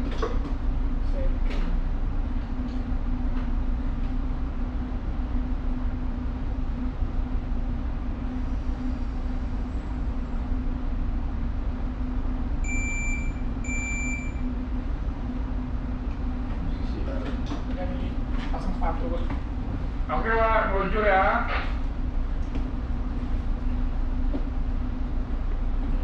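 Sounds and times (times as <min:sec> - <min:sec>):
ship engine rumble and hum: 0:00.0 - 0:26.0
short high beeps: 0:12.7 - 0:14.4.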